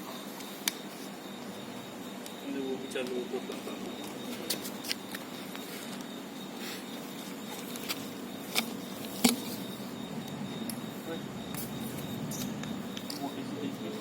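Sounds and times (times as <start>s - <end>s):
background hum: 0.0s - 14.0s.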